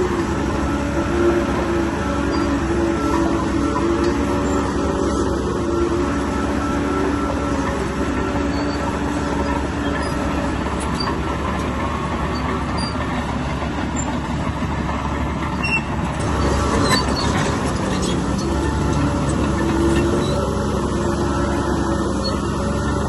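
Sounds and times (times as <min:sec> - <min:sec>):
bulldozer diesel engine under load: 0:00.0 - 0:23.0
metallic squeaks and clicks: 0:08.3 - 0:11.3, 0:12.2 - 0:13.2, 0:15.4 - 0:20.5.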